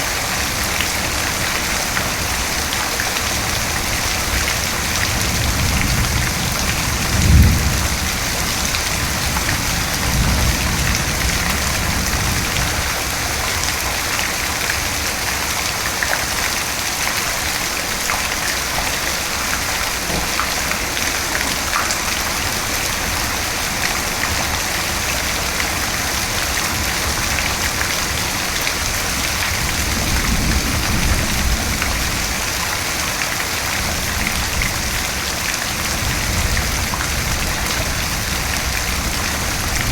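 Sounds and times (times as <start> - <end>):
steady rain: 0.0 - 39.9
thunder rumbling: 3.6 - 13.1.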